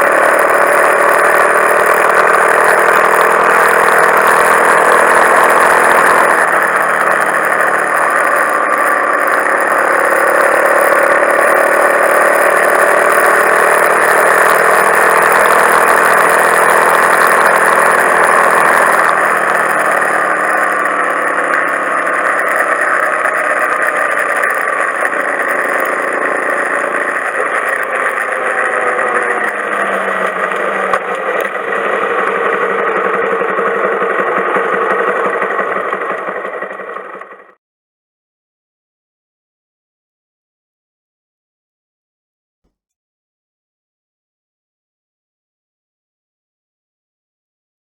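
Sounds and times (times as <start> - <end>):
motorcycle engine running: 0.0 - 37.6.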